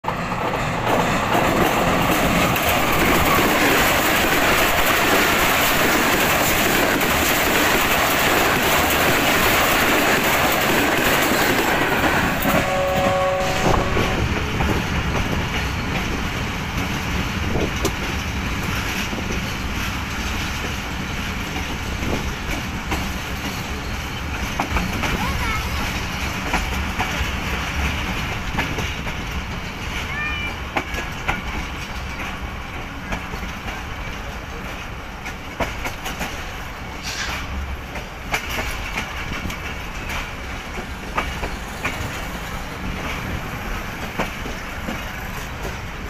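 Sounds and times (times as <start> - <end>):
passenger train rumbling past: 0.0 - 46.0
train clickety-clack from aboard: 0.0 - 46.0
train horn blast: 12.4 - 14.7.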